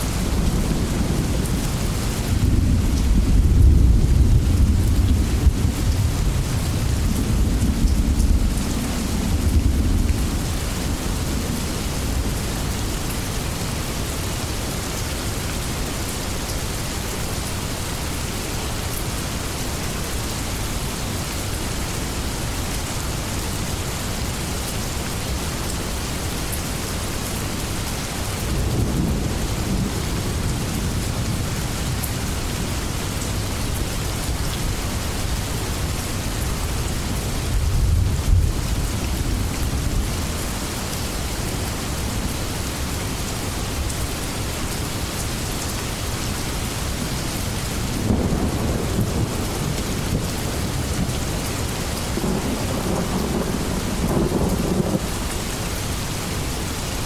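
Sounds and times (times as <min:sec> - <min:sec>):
rain falling on leaves: 0:00.0 - 0:57.0
distant thunder rumbles: 0:47.9 - 0:56.2.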